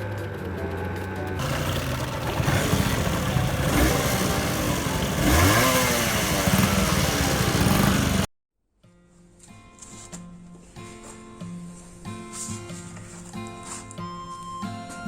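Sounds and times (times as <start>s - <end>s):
background music: 0.0s - 8.2s
motorcycle engine revving: 0.0s - 8.3s.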